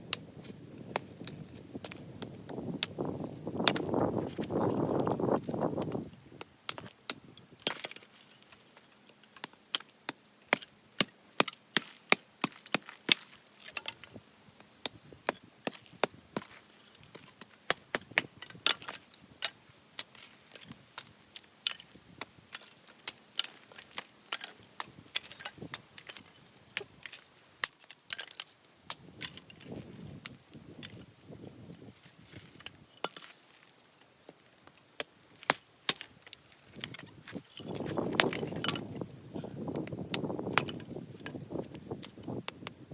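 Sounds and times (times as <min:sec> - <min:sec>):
rustle: 0:00.0 - 0:42.9
hatchet chopping wood: 0:03.6 - 0:05.0, 0:09.4 - 0:13.8, 0:14.9 - 0:19.0.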